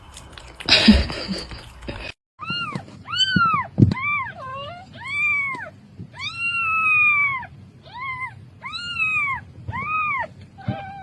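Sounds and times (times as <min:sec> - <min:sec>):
cat meowing: 0:02.4 - 0:11.0.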